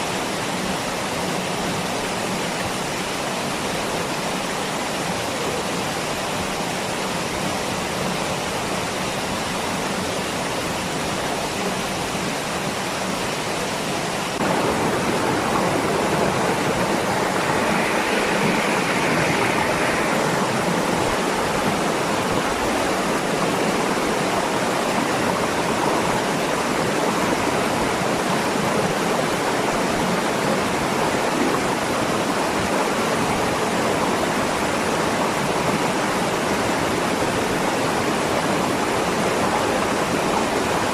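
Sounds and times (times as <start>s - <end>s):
waterfall rushing water: 0.0s - 40.9s.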